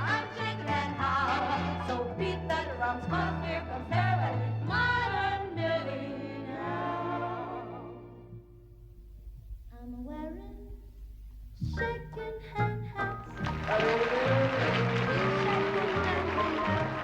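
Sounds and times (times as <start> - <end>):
women singing together: 0.0 - 8.1, 13.6 - 17.0
orchestral music: 13.0 - 17.0.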